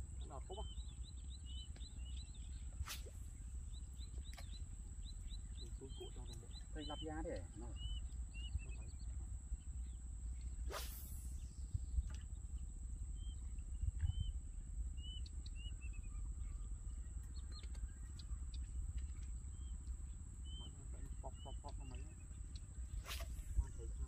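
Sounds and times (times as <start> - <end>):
small birds chirping: 0.0 - 24.0
steady low rumble: 0.0 - 24.0
falling swish: 2.8 - 3.2, 10.7 - 11.4, 23.0 - 23.6
thin high whine: 10.5 - 12.0.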